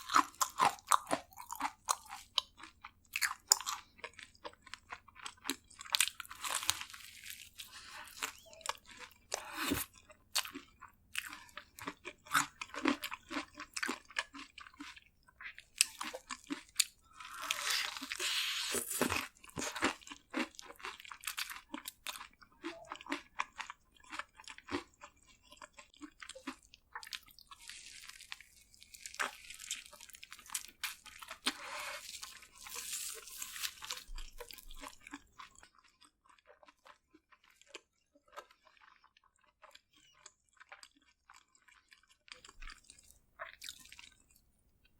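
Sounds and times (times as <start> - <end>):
wet chewing clicks: 7.4 - 44.4
crunching bites: 15.8 - 21.8.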